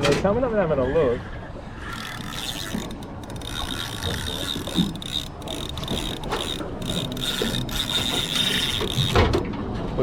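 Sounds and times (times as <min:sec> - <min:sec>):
fishing reel whirring and clicking: 0:01.8 - 0:09.5.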